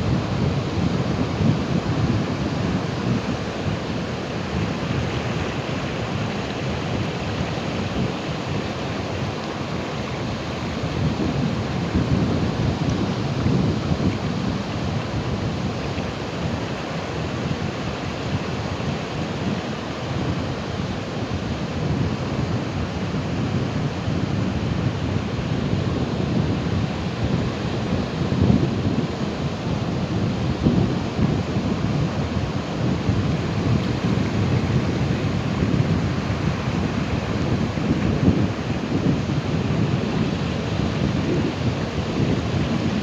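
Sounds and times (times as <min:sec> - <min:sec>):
waves breaking: 0:00.0 - 0:43.0.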